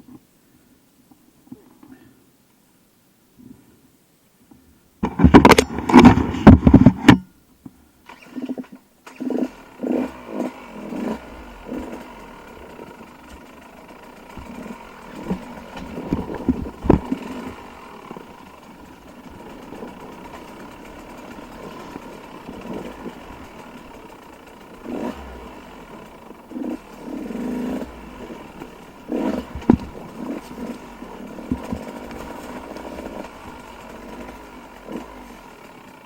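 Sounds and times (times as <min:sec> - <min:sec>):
dirt bike engines revving: 0:08.1 - 0:36.0.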